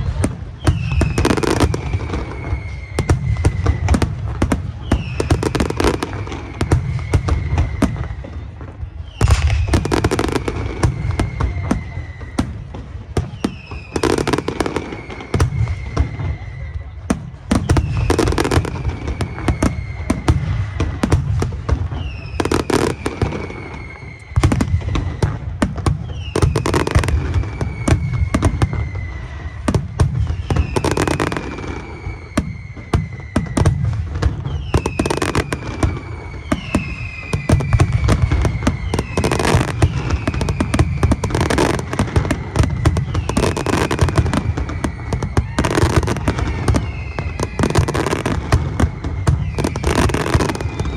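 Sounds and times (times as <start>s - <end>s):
fireworks bangs and crackles: 0.0s - 50.9s
high whistle falling in pitch: 0.0s - 50.9s.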